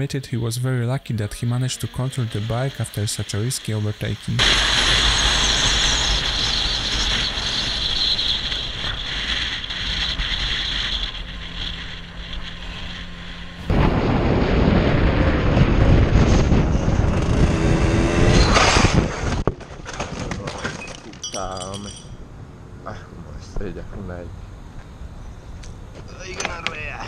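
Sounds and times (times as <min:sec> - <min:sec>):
motorcycle engine drone: 0:01.3 - 0:19.5
wind buffeting microphone: 0:04.4 - 0:19.5.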